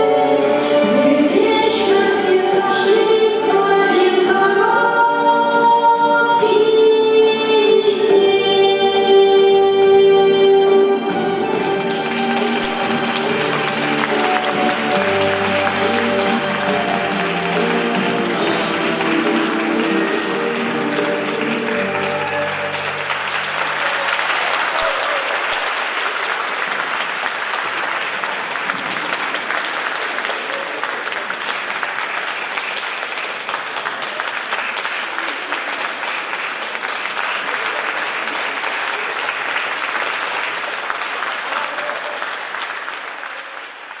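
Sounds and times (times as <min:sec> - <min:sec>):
song's held notes: 0:00.0 - 0:23.8
audience applauding: 0:11.4 - 0:44.0.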